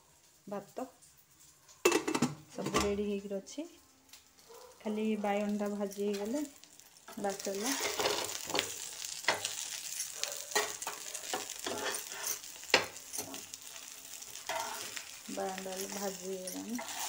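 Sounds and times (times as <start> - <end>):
eggplant sizzling in oil: 0.0 - 17.0
steel spatula clicking and scraping: 7.1 - 17.0.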